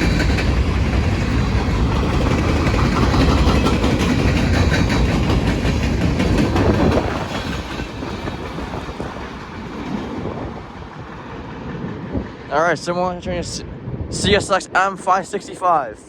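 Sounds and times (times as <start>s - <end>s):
freight train wheels clattering: 0.0s - 12.6s.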